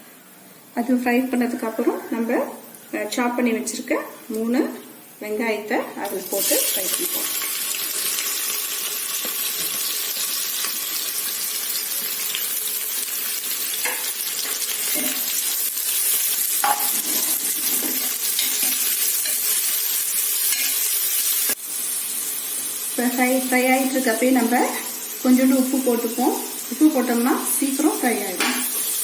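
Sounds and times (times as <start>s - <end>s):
onions sizzling in hot oil: 5.2s - 29.0s.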